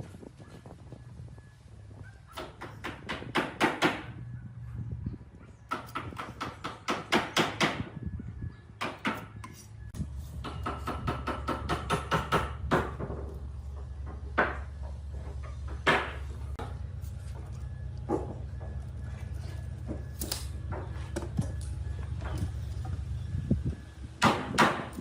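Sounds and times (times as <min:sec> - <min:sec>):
steady low hum: 0:12.6 - 0:24.9
sharp knocks on wood: 0:14.0 - 0:16.7.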